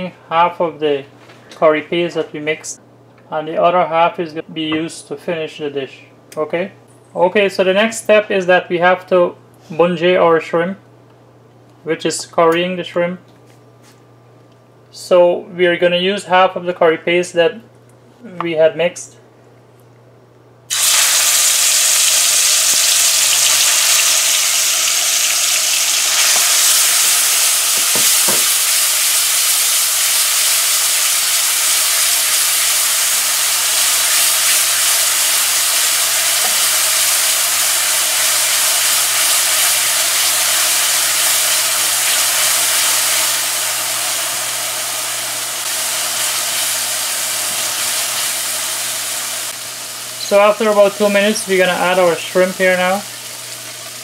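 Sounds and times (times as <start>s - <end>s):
paste sizzling in hot oil: 20.7s - 54.0s.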